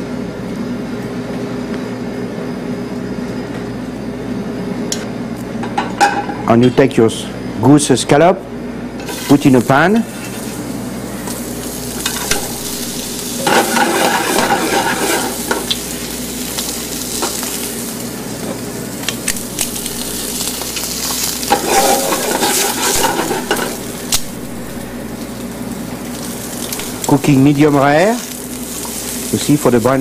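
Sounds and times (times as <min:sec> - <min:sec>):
liver slices sizzling in frying pan: 0:09.0 - 0:30.0.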